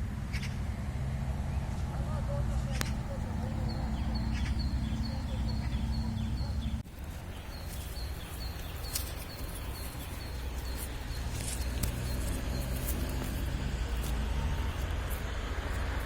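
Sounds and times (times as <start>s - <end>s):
brief bird calls: 2.8s - 6.8s
high bird chirp: 2.9s - 13.3s.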